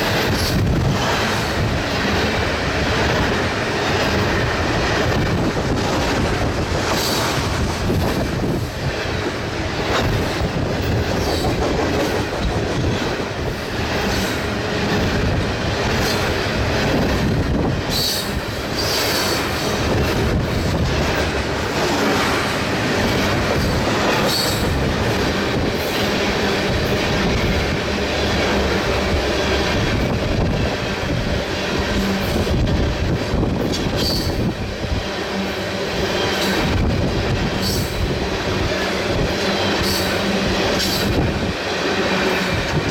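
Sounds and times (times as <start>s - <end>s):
freight train wheels rumbling: 0.0s - 42.9s
train wheel squeals: 10.0s - 13.1s, 17.8s - 20.8s, 23.1s - 26.2s, 33.6s - 34.5s, 35.4s - 38.1s, 38.7s - 41.3s.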